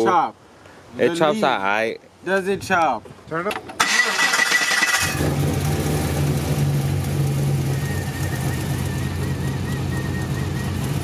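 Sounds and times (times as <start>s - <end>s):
car engine idling: 3.8s - 11.0s.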